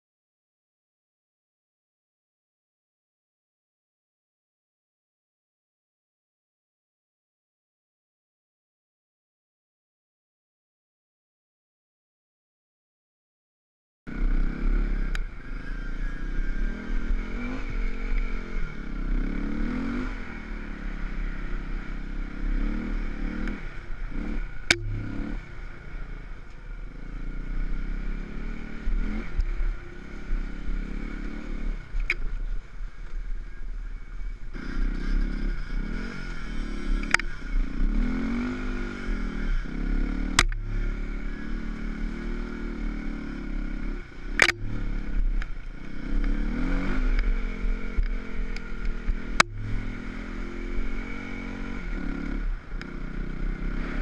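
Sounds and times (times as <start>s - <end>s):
dirt bike engine: 14.1s - 54.0s.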